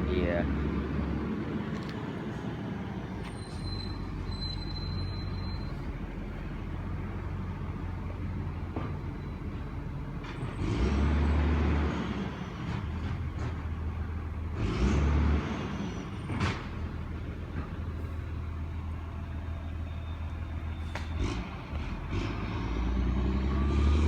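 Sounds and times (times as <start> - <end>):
truck engine revving: 10.1 - 18.9, 20.3 - 24.0.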